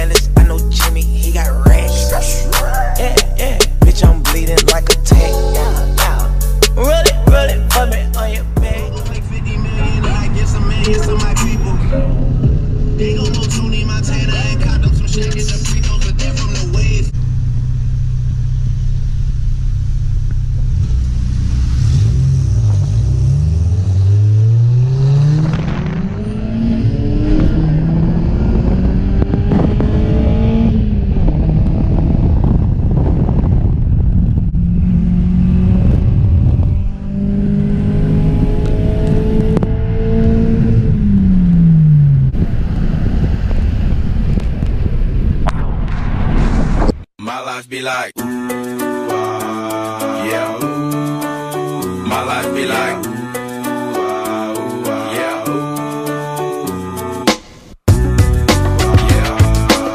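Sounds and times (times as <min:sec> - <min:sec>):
car engine revving: 0:00.0 - 0:45.3.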